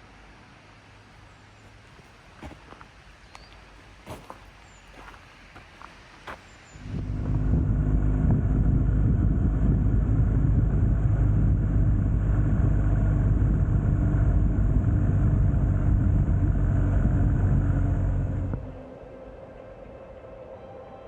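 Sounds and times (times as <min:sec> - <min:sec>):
motorcycle engine running: 0:06.8 - 0:18.7.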